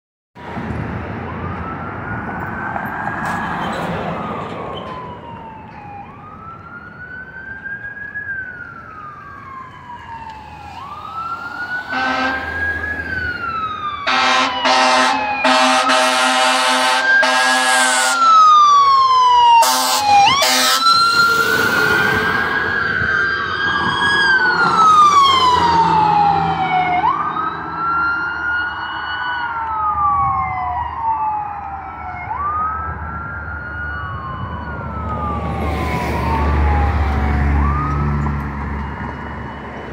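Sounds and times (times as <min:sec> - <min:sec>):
fire siren wailing: 0:00.5 - 0:39.9
second siren: 0:01.1 - 0:39.9
air horn blasts: 0:11.9 - 0:12.6, 0:14.1 - 0:18.2, 0:19.6 - 0:20.9.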